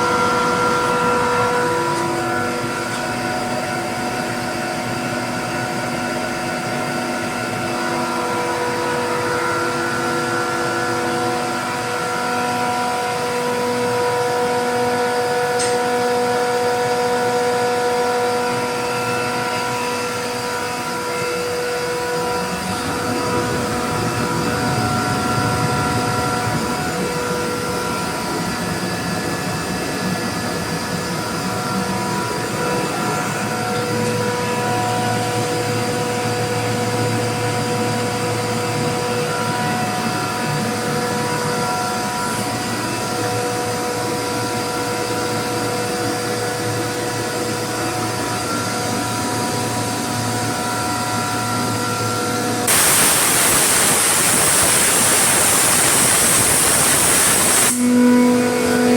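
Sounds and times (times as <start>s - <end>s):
air compressor humming: 46.3s - 58.9s.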